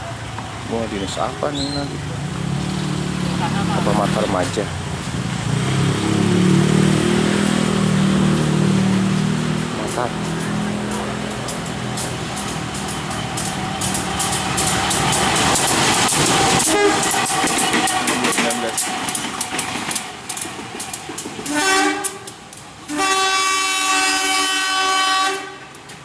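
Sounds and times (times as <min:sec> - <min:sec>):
train wheels clattering: 0:07.0 - 0:24.4
train horn blasts: 0:16.6 - 0:17.4, 0:21.5 - 0:25.8.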